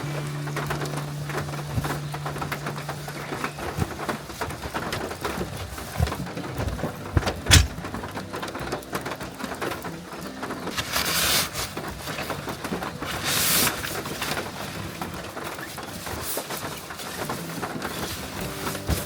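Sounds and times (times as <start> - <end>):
heavy rain on a tarp: 0.0 - 19.0.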